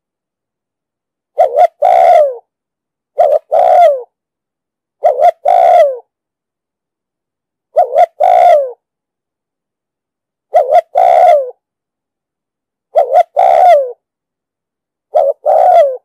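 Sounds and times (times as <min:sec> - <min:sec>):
dove cooing: 0:01.3 - 0:02.5, 0:03.2 - 0:04.1, 0:05.0 - 0:06.1, 0:07.7 - 0:08.8, 0:10.5 - 0:11.6, 0:12.9 - 0:14.0, 0:15.1 - 0:16.0.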